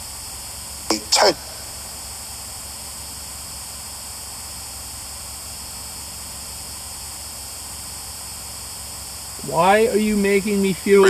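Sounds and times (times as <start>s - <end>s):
static hiss: 8.4s - 11.0s.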